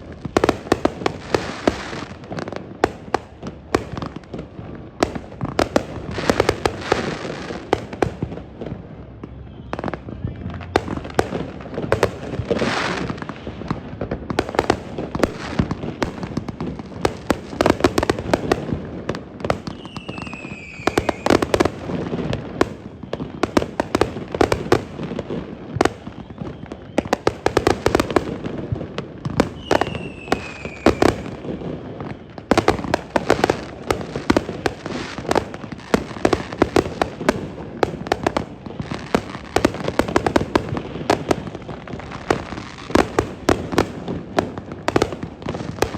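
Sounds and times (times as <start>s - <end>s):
fireworks bangs and crackling: 0.0s - 45.9s
falling firework whistle: 5.6s - 13.9s, 19.5s - 28.6s, 29.2s - 45.9s.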